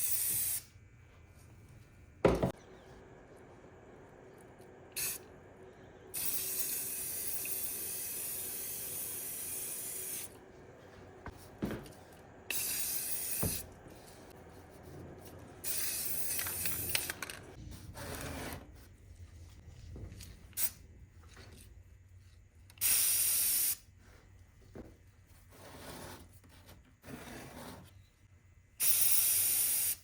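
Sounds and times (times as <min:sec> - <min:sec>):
aerosol spray can hissing: 0:00.0 - 0:00.7, 0:05.0 - 0:05.2, 0:06.1 - 0:10.3, 0:12.5 - 0:13.7, 0:15.6 - 0:17.0, 0:22.8 - 0:23.8, 0:28.8 - 0:30.0.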